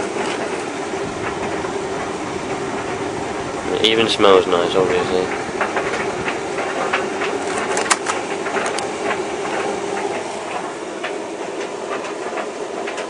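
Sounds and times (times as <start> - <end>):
tumble dryer humming: 0.0 - 13.0
towels tumbling clicks and knocks: 5.6 - 11.2.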